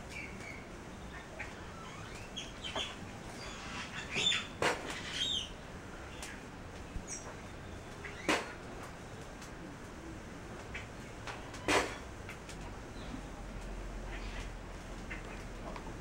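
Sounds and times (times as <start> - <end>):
small birds chirping: 0.0 - 8.4
brief crackles: 10.6 - 12.7.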